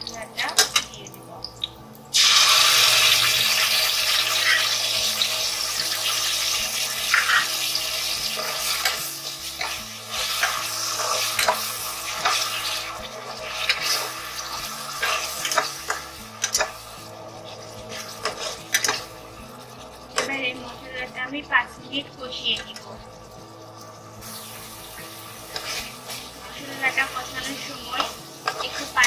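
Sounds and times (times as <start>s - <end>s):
paste sizzling in hot oil: 1.5s - 29.0s
spatula scraping a pan: 3.8s - 20.4s, 23.8s - 29.0s.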